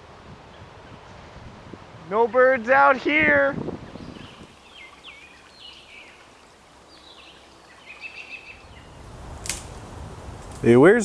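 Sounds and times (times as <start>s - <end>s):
low outdoor background noise: 0.0s - 11.0s
birds chirping faintly: 3.8s - 9.1s.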